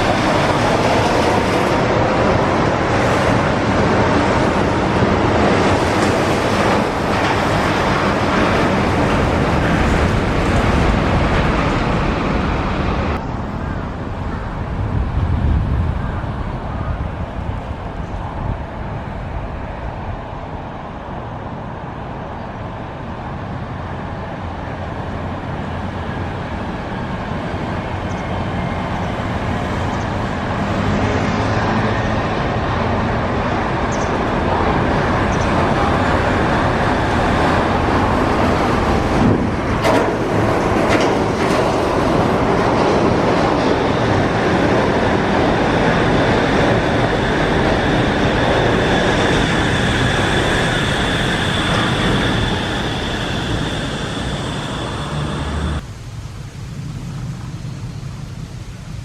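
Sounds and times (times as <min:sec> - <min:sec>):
suspended train rumbling: 0:00.0 - 0:59.0.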